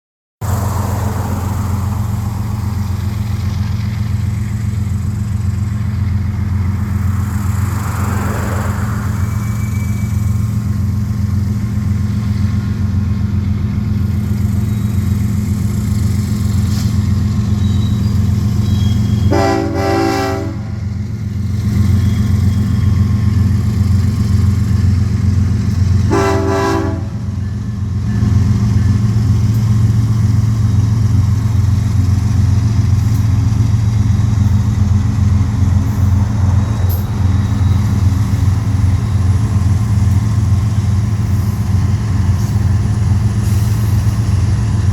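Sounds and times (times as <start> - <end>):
diesel locomotive engine: 0.4 - 44.9
locomotive air horn blasts: 19.2 - 20.8, 26.0 - 27.3.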